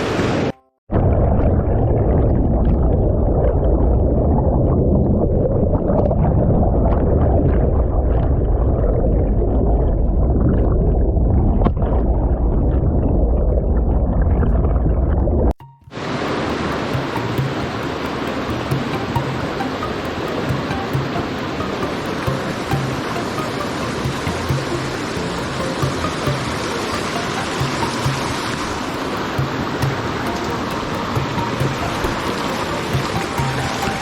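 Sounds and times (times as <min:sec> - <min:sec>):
muffled stream water rushing: 0:00.0 - 0:08.3, 0:15.8 - 0:34.0.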